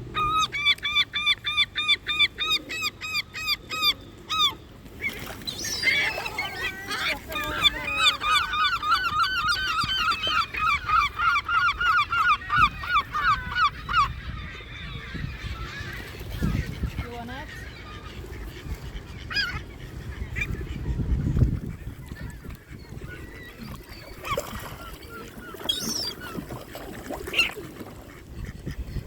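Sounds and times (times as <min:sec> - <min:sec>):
waterbird honking calls: 0:05.7 - 0:14.2.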